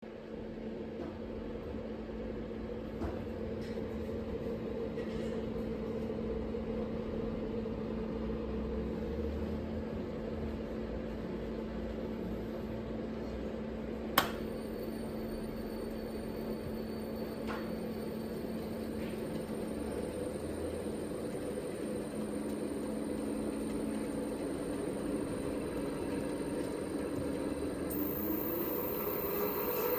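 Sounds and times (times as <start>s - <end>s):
electrical hum with fan noise: 0.0s - 29.9s
sharp click: 14.2s - 14.4s.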